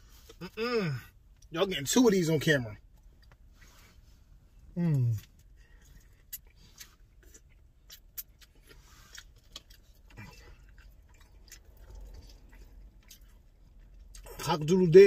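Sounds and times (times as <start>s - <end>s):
person chewing and biting food: 4.9s - 14.5s.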